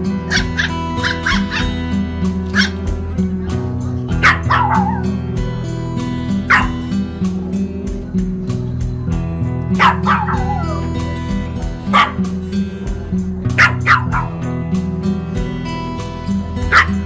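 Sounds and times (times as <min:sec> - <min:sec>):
background music: 0:00.0 - 0:17.0
puppy yipping and barking: 0:00.3 - 0:01.8, 0:02.5 - 0:02.8, 0:04.2 - 0:05.1, 0:06.5 - 0:06.8, 0:09.8 - 0:10.9, 0:11.9 - 0:12.3, 0:13.6 - 0:14.4, 0:16.7 - 0:17.0.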